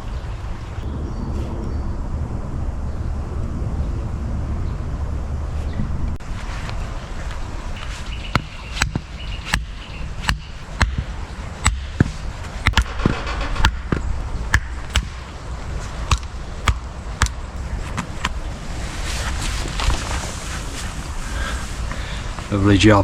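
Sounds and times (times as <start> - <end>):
axe chopping wood: 7.8 - 18.4.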